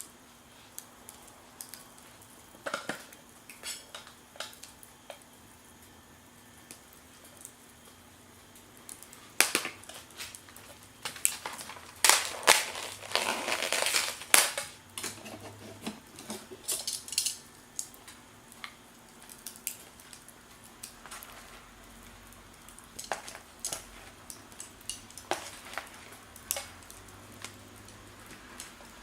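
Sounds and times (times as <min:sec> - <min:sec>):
cooking gear clattering: 0:10.6 - 0:17.5.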